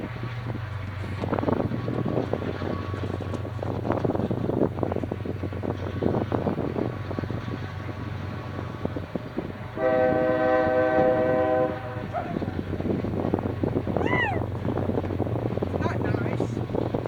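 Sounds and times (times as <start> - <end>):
train rumbling: 0.0 - 17.0
locomotive air horn: 9.7 - 12.7.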